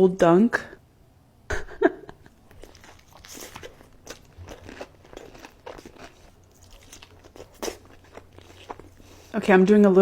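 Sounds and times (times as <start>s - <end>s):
crunchy chewing: 2.3s - 9.4s.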